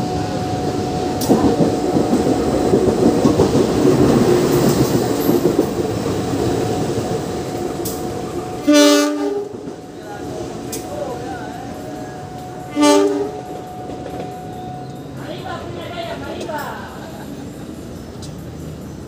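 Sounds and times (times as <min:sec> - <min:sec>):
train wheels clattering over rail joints: 0:01.2 - 0:08.7.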